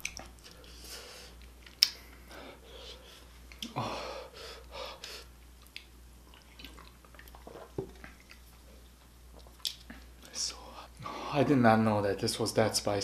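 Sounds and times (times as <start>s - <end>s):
person chewing food: 0.0s - 2.2s, 5.6s - 10.2s
small mouth clicks: 3.5s - 3.8s.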